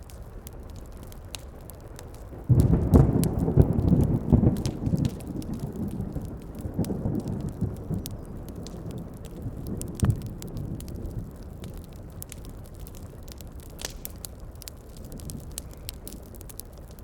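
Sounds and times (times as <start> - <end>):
heavy rain: 0.0 - 17.0
wood fire crackling: 0.0 - 17.0
thunder roll: 2.5 - 12.3.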